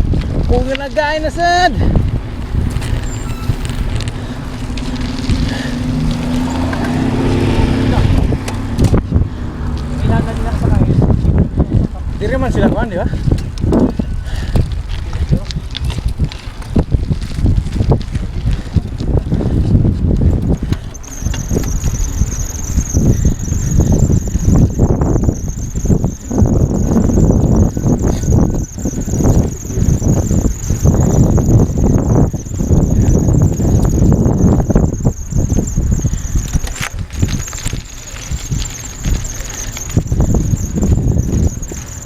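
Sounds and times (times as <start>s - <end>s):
tyres rumbling on dirt trail: 0.0s - 42.0s
bicycle brakes squealing: 0.4s - 9.4s, 10.0s - 42.0s
high-pitched whine: 2.7s - 8.2s, 21.0s - 42.0s.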